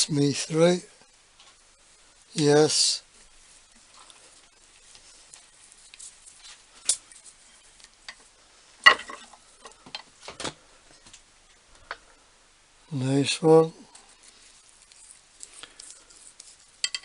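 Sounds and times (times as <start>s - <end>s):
small tools and metal parts clicking: 15.7s - 17.0s.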